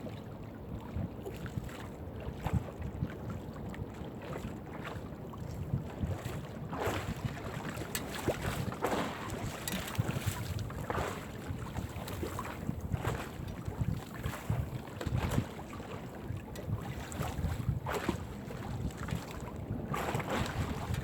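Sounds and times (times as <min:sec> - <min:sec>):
wind buffeting microphone: 0:05.3 - 0:21.0
water splashing: 0:06.9 - 0:13.6.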